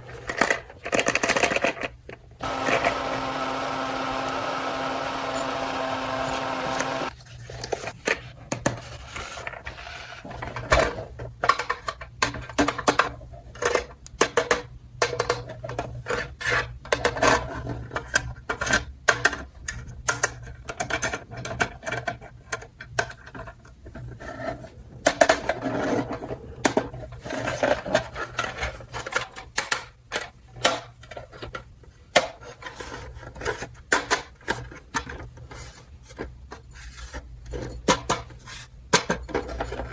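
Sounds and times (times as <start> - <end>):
steady buzzing hum: 2.4 - 7.1.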